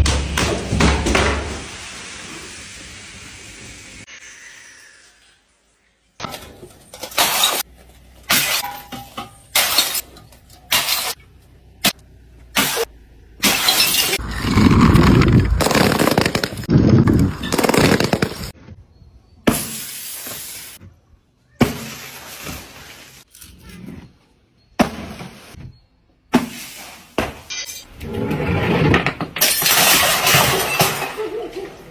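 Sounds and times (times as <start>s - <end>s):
glass bottles smashing: 6.3s - 7.6s, 8.3s - 11.2s, 13.4s - 14.2s, 27.4s - 27.9s, 29.3s - 31.6s
heavy crushing and crunching: 14.0s - 18.6s.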